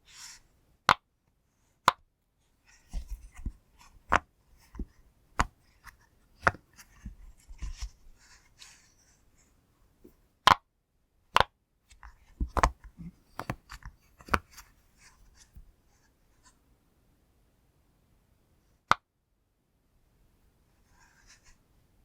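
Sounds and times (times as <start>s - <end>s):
soft clicks and rubbing: 2.6s - 10.2s, 11.9s - 16.6s.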